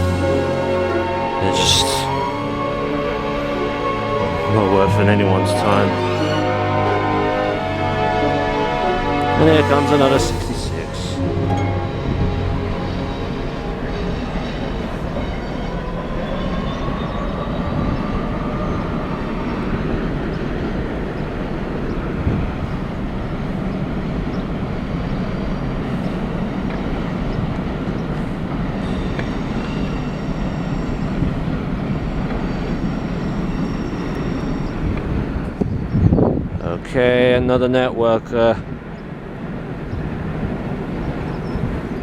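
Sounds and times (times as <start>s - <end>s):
train motor whine: 0.0s - 15.0s
thin high tones: 0.0s - 15.1s.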